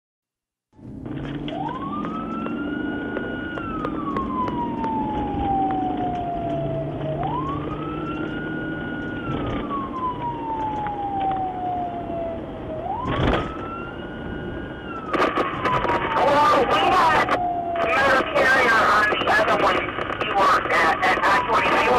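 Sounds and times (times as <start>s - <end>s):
emergency siren wailing: 0.8s - 21.9s
burst of noise: 15.1s - 16.4s.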